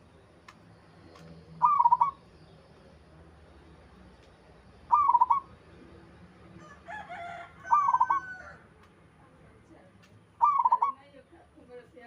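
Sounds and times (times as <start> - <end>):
dove cooing: 1.6 - 2.2, 4.9 - 5.5, 10.4 - 11.0.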